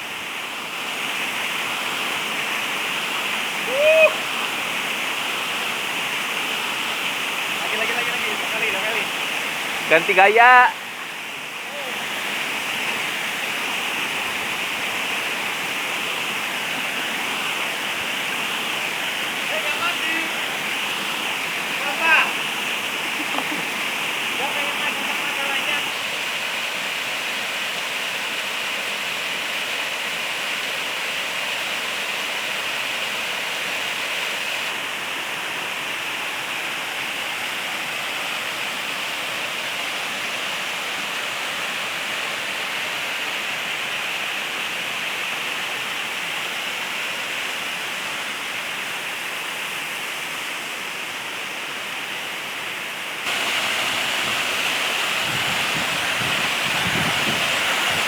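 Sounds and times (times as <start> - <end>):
waterfall rushing: 0.0 - 58.0
wind buffeting microphone: 53.6 - 58.0.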